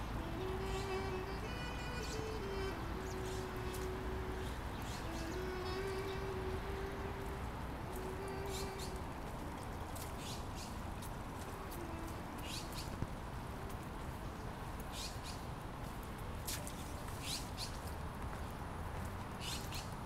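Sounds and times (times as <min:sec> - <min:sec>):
steady background noise: 0:00.0 - 0:20.0
bird chirping: 0:00.2 - 0:06.9, 0:10.2 - 0:10.8.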